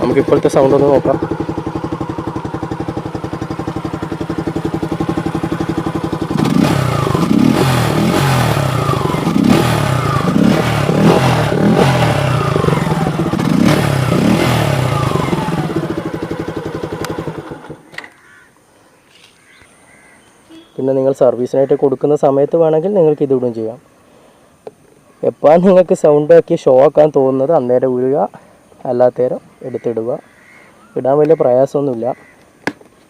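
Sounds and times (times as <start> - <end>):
motorcycle engine idling and revving: 0.0 - 18.0.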